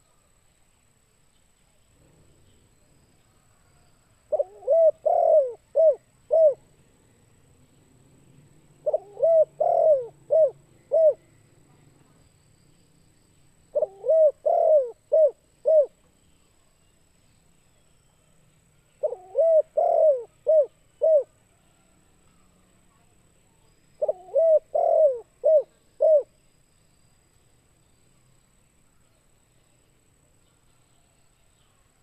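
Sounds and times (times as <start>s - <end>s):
dove cooing: 4.3s - 6.7s, 8.8s - 11.3s, 13.7s - 16.0s, 19.0s - 21.4s, 24.0s - 26.3s.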